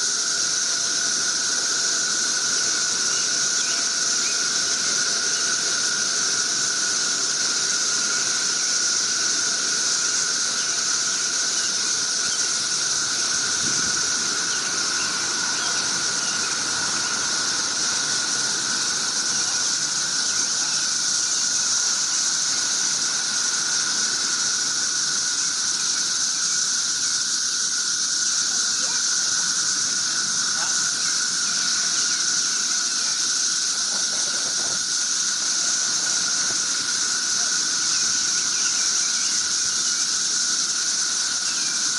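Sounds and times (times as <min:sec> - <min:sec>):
cicadas droning: 0:00.0 - 0:41.9.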